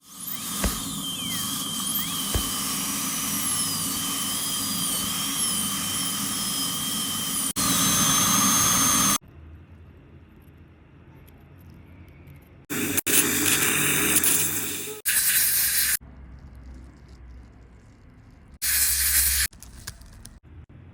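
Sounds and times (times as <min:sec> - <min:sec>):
dental drill whining: 0:00.0 - 0:09.2, 0:18.6 - 0:19.5.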